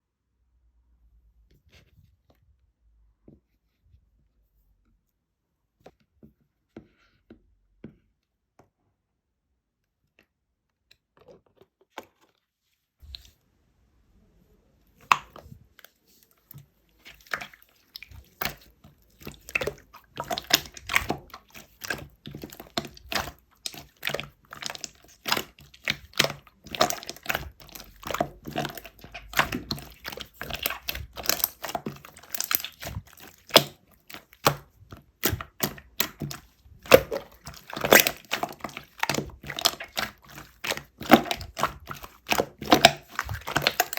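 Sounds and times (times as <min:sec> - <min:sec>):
eating with wet clicks and chewing: 0:15.0 - 0:43.9.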